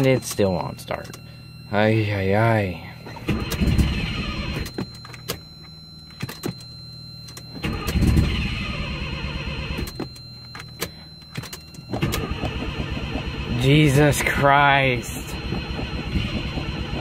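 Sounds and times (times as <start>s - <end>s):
engine cranking on starter: 7.6s - 9.2s.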